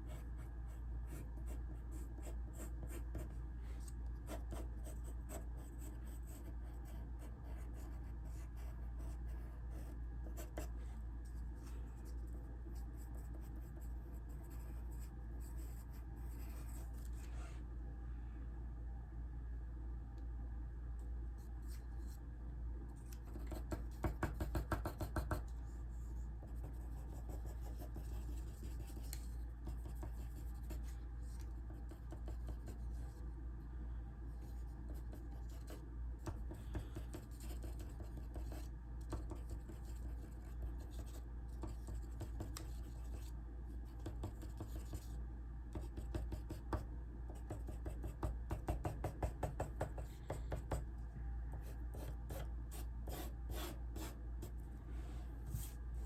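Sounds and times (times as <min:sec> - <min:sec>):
pencil scratching on paper: 0:00.0 - 0:10.7, 0:12.9 - 0:17.3, 0:23.2 - 0:25.5, 0:26.4 - 0:33.1, 0:34.5 - 0:43.3, 0:44.0 - 0:45.1, 0:51.9 - 0:54.2
steady low hum: 0:00.0 - 0:56.0.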